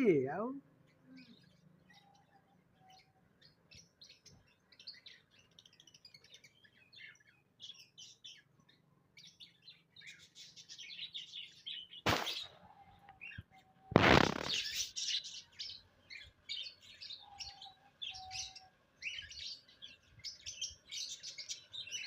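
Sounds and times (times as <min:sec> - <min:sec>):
small birds twittering: 0:00.0 - 0:22.0
brief loud noise: 0:12.1 - 0:12.5, 0:13.9 - 0:14.8.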